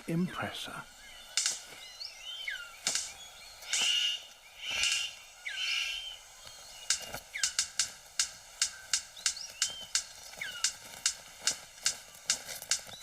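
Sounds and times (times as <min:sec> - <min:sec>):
harsh bird calls: 0:00.0 - 0:13.0
thin whistled bird chirps: 0:00.9 - 0:07.8, 0:08.6 - 0:10.8
sharp clicking bird notes: 0:00.9 - 0:13.0.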